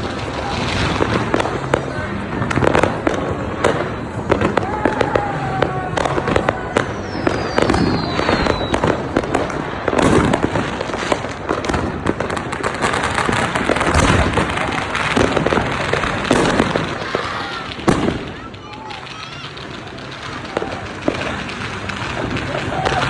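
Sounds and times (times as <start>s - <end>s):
fireworks bangs and crackles: 0.0s - 23.0s
falling firework whistle: 4.4s - 10.4s.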